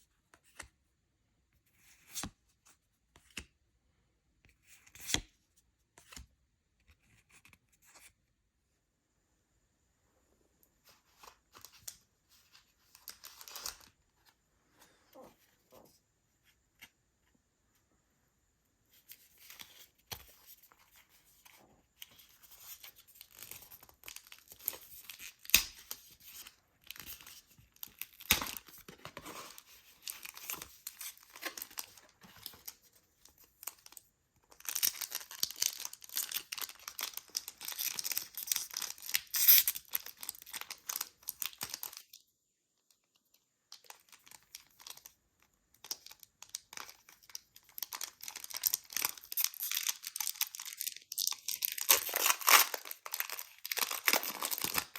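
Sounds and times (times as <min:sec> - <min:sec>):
wrapper tearing and crinkling: 0:34.6 - 0:42.0, 0:45.8 - 0:54.9.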